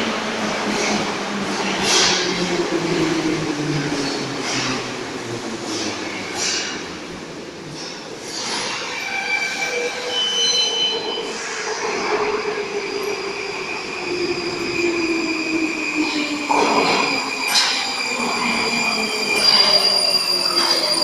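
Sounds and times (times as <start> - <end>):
metro train traction drive whine: 0.0 - 21.0
wheel squeal: 16.0 - 21.0.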